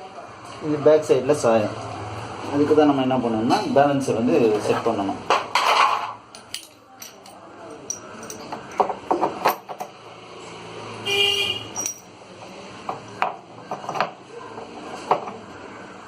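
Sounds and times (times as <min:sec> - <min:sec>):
vehicle horn honk: 0:11.0 - 0:11.8.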